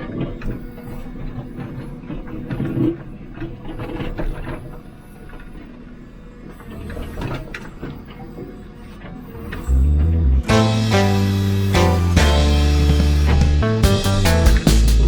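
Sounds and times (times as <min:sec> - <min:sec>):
diesel engine running: 0:09.6 - 0:15.0.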